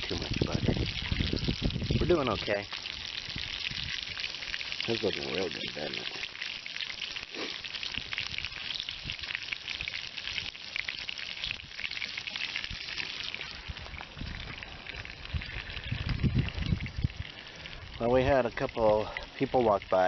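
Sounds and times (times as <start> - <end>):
food sizzling in a pan: 0.0 - 15.6.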